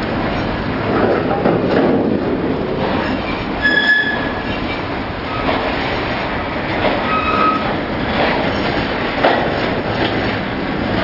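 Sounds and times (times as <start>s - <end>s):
train wheels rumbling: 0.0s - 11.0s
wheels clicking over rail joints: 0.0s - 11.0s
high wheel squeals: 3.0s - 5.5s, 7.0s - 7.7s.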